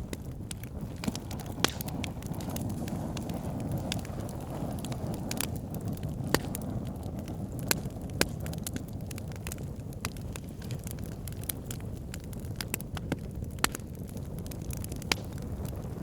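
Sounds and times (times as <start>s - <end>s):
sharp pops of fire: 0.0s - 16.0s
wood fire crackling: 0.0s - 16.0s.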